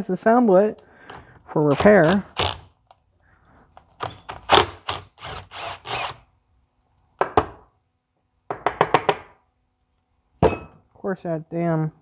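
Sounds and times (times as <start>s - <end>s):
tool rasping bursts: 1.6s - 2.7s, 4.0s - 6.2s.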